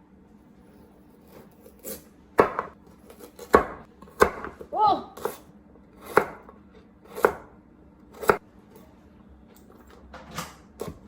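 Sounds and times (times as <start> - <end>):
knife chopping on cutting board: 1.2 - 4.6, 6.0 - 6.5, 7.1 - 7.5, 8.2 - 8.4.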